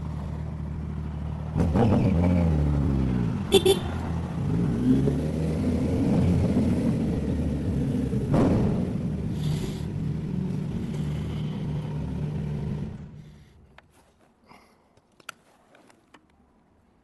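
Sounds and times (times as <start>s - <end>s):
motorcycle exhaust rumble: 0.0s - 13.5s.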